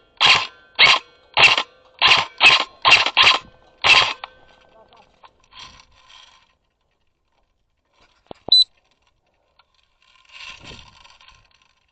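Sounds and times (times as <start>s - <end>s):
sharp clicks: 0.2s - 4.4s.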